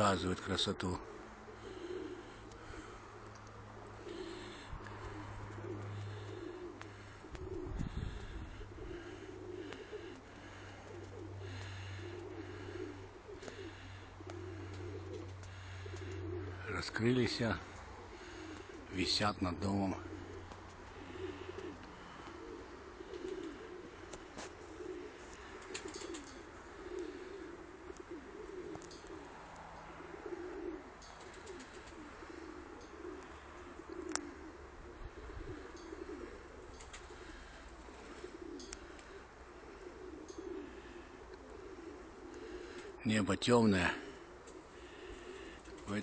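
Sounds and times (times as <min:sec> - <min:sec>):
pigeons cooing: 0:00.0 - 0:46.0
faint clicks: 0:02.4 - 0:03.6, 0:28.7 - 0:29.7, 0:33.9 - 0:34.3, 0:38.5 - 0:39.2.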